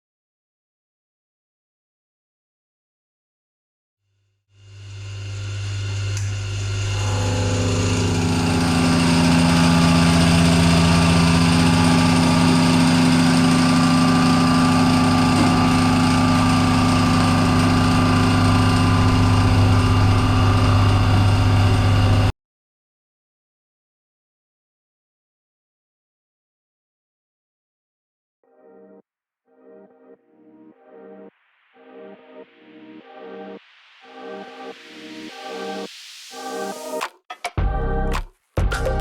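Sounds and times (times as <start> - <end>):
milling machine motor humming: 4.6 - 22.3.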